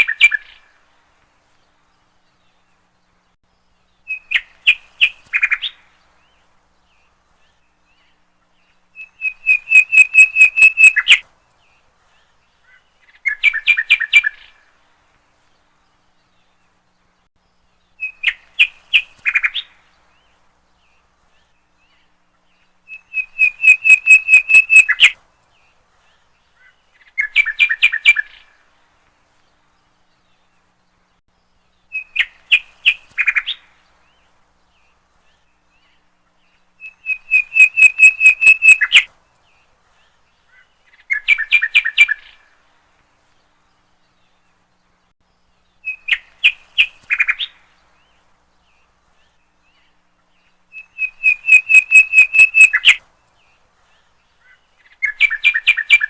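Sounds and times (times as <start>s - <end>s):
songbird chirping: 0.0s - 56.0s.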